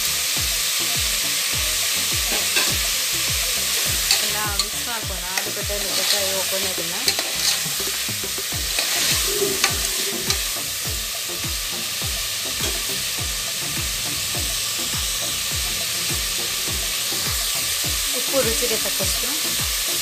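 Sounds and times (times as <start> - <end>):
food sizzling in hot oil: 0.0 - 20.0
ladle scraping a pot: 5.4 - 8.0, 8.7 - 10.5.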